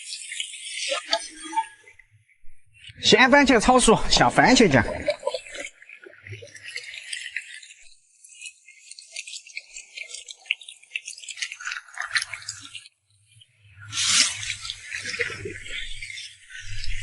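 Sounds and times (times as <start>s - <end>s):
tomatoes sizzling in oil: 0.0s - 1.8s, 13.7s - 17.0s
stirring scrapes and squelches: 0.0s - 3.8s, 4.5s - 17.0s.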